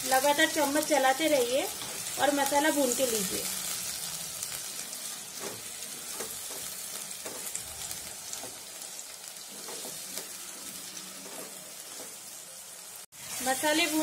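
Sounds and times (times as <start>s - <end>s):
paste sizzling in oil: 0.0s - 14.0s
wooden spoon scraping pan: 9.5s - 12.2s.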